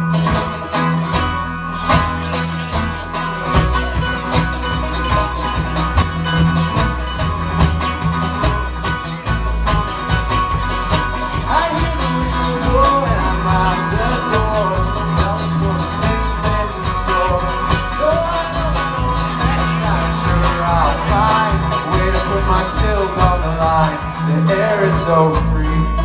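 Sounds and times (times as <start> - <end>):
country band playing: 0.0 - 26.0
person singing: 11.1 - 26.0.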